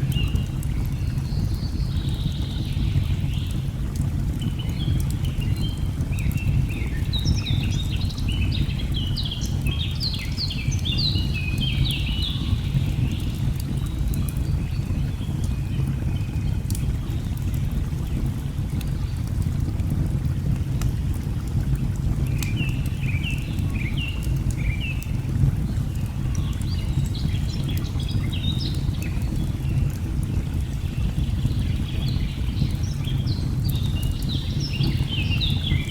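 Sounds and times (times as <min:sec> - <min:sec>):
wood fire crackling: 0:03.0 - 0:06.4, 0:12.4 - 0:35.9.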